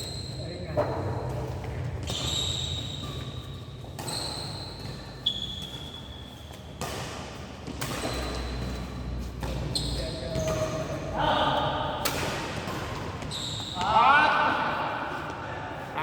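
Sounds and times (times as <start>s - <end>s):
shoes squeaking on court floor: 0.0s - 16.0s
rackets striking shuttlecock: 2.0s - 14.0s.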